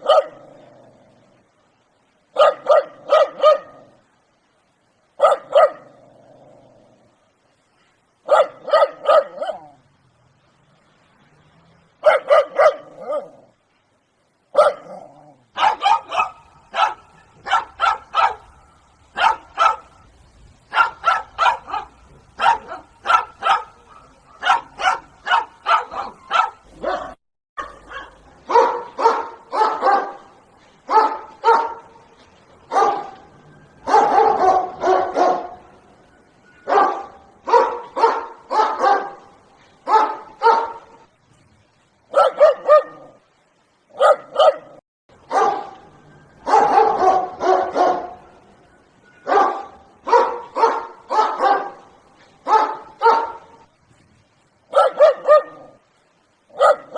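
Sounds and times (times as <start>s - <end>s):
dog barking: 0.0s - 0.5s, 2.3s - 3.9s, 5.2s - 5.9s, 8.2s - 9.8s, 12.0s - 13.4s, 14.5s - 18.6s, 19.2s - 20.0s, 20.7s - 30.3s, 30.9s - 32.0s, 32.7s - 33.2s, 33.8s - 35.6s, 36.6s - 41.0s, 42.1s - 43.2s, 43.9s - 45.8s, 46.4s - 48.3s, 49.2s - 53.6s, 54.7s - 55.8s, 56.5s - 56.9s.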